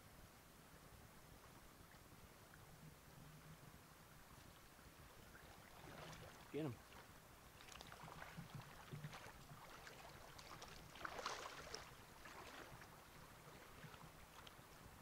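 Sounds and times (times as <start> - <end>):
stream water sloshing: 1.4 - 15.0
water splash: 5.4 - 14.5.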